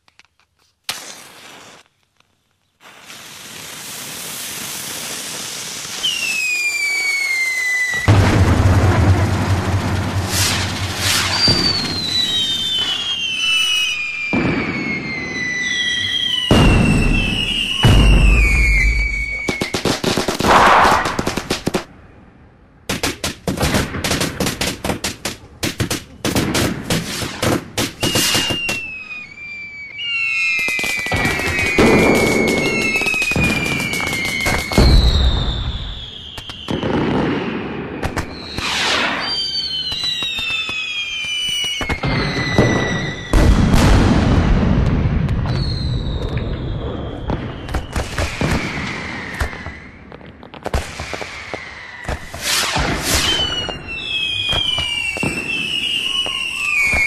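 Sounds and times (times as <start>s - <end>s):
rapid firework crackling: 0.0s - 21.9s, 22.9s - 57.0s
firework whistles falling in pitch: 2.8s - 8.5s, 10.1s - 21.2s, 27.2s - 44.0s, 45.3s - 50.1s, 50.9s - 57.0s
deep booms of bursting shells: 5.8s - 13.1s, 14.2s - 21.9s, 41.8s - 50.0s.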